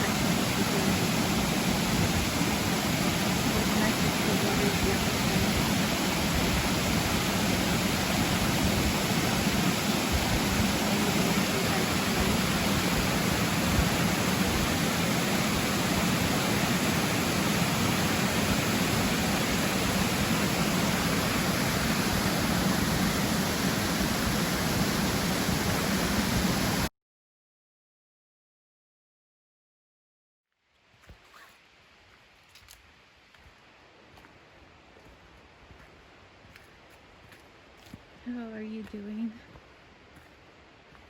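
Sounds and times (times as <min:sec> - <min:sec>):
river rushing: 0:00.0 - 0:26.9.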